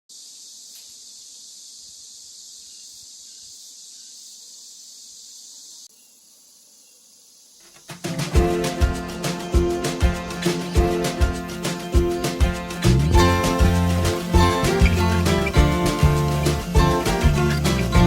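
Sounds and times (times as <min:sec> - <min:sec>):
chorus of insects: 0:00.1 - 0:12.4
music with a strong beat: 0:08.1 - 0:18.0.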